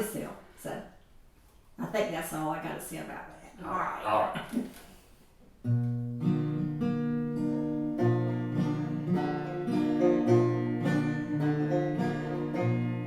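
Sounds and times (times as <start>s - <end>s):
acoustic guitar strumming: 5.6s - 13.0s.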